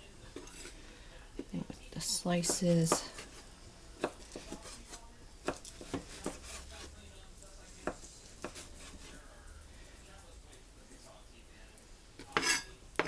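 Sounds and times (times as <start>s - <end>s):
knife cutting meat: 4.0s - 7.0s, 7.8s - 9.3s.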